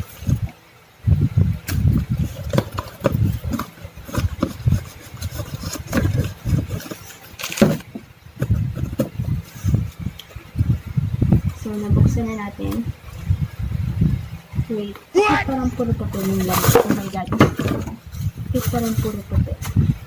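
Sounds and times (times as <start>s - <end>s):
cardboard box knocking and rustling: 1.7s - 9.5s, 16.2s - 18.0s.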